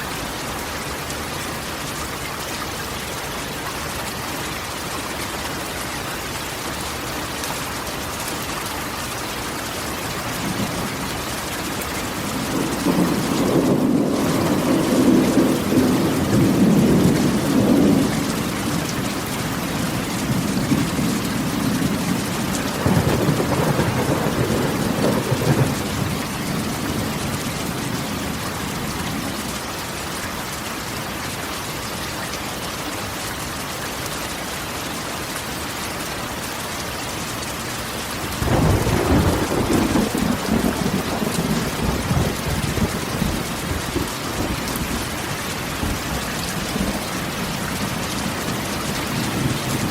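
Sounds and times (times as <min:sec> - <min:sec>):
rain on a metal roof: 0:00.0 - 0:49.9
thunder rumbling: 0:10.4 - 0:29.2, 0:38.4 - 0:49.9.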